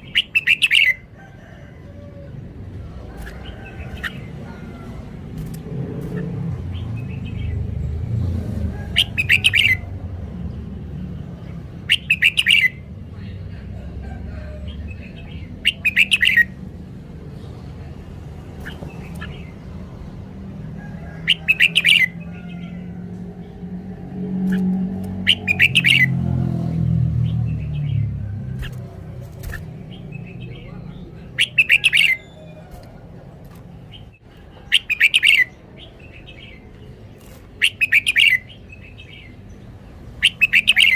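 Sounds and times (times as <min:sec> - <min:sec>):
bird warbling: 0:24.4 - 0:26.2, 0:27.2 - 0:33.0.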